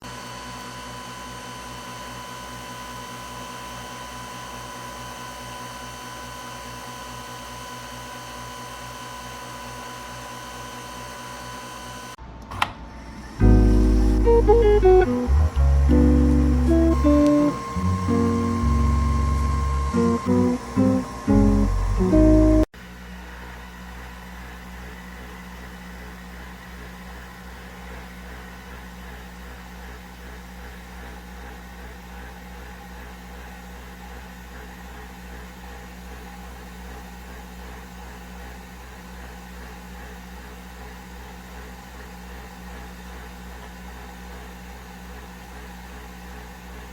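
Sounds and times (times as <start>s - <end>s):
mechanical hum with whine: 0.0s - 36.3s
click: 12.4s - 12.8s
low mechanical hum with hiss: 12.5s - 22.7s.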